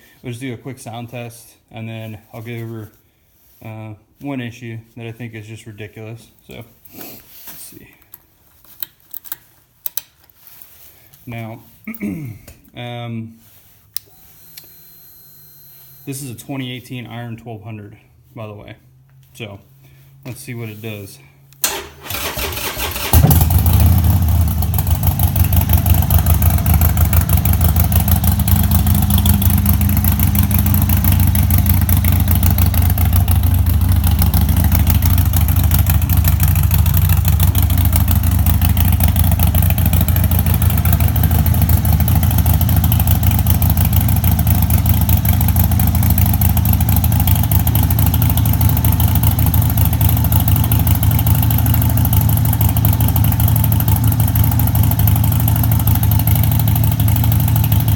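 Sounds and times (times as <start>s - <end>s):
motorcycle engine idling: 22.1s - 57.9s.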